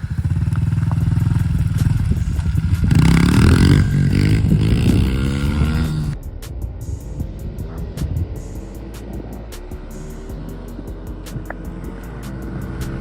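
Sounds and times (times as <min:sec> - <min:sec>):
pit bike engines revving hard: 0:00.0 - 0:06.2, 0:08.8 - 0:13.0.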